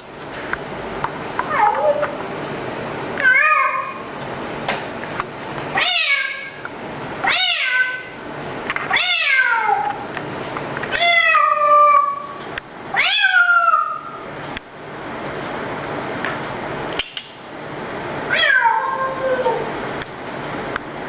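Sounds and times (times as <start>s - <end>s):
cat meowing: 1.5s - 2.2s, 3.2s - 4.0s, 5.8s - 6.6s, 7.2s - 8.1s, 8.9s - 10.0s, 10.9s - 12.4s, 13.0s - 14.2s, 18.3s - 19.7s.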